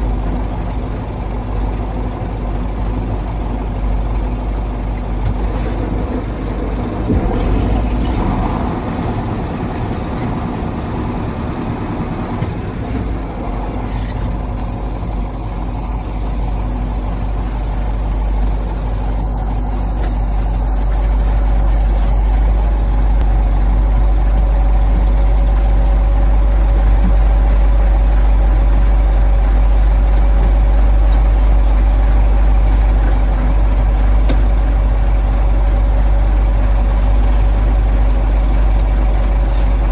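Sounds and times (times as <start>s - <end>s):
diesel truck engine running: 0.0s - 14.7s, 23.2s - 39.9s.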